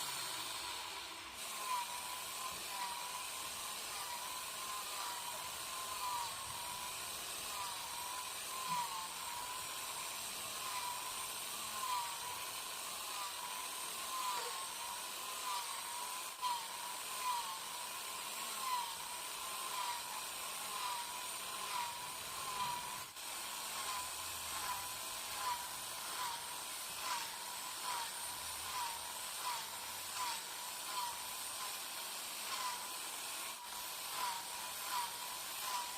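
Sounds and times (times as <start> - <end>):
power tool motor whirring: 0.0 - 35.9.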